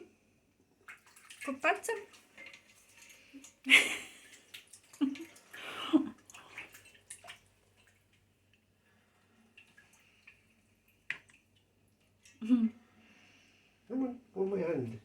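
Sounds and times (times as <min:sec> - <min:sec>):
faint water drips: 0:00.5 - 0:15.0
water splashing in a bath: 0:00.7 - 0:12.6.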